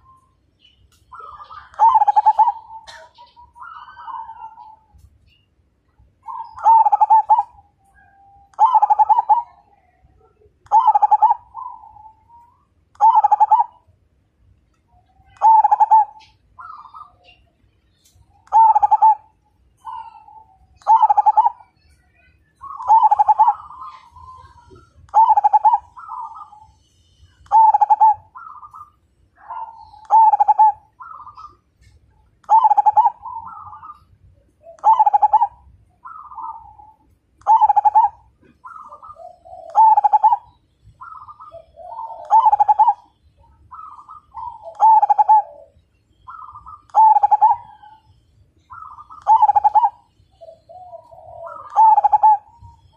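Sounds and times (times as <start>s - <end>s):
dove cooing: 1.1s - 5.0s, 6.2s - 13.9s, 15.2s - 17.4s, 18.4s - 21.7s, 22.6s - 26.8s, 27.4s - 52.9s.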